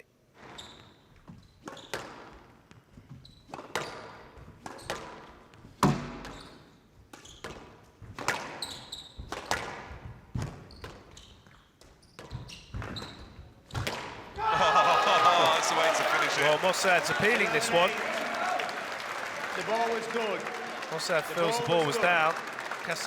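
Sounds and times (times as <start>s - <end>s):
squash ball hits with echo: 4.7s - 6.4s.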